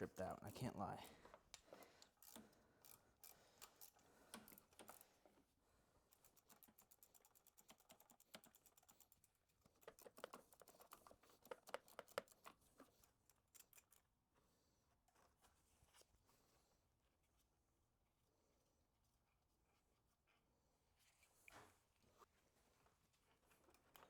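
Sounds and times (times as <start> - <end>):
hand ratchet clicking: 2.0 - 5.0.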